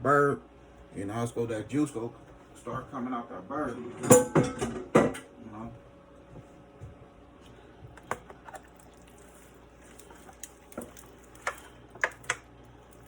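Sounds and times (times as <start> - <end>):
hands squishing raw poultry: 7.5 - 13.0.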